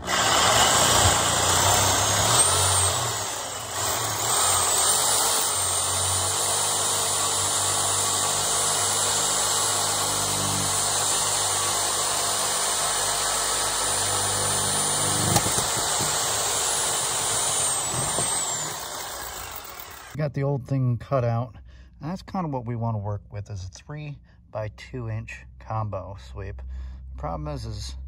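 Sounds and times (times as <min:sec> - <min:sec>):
reciprocating saw cutting pipe: 0:00.0 - 0:20.2.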